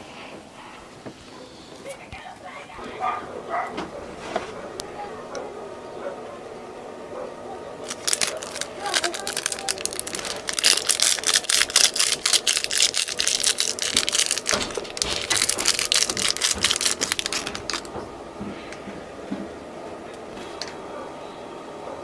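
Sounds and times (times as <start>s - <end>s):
slime crackling and popping: 7.8s - 17.9s.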